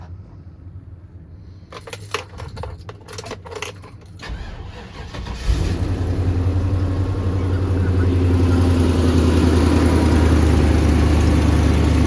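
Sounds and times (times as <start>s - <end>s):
keys jangling in ignition: 1.7s - 5.4s
truck engine starting and idling: 2.2s - 12.0s.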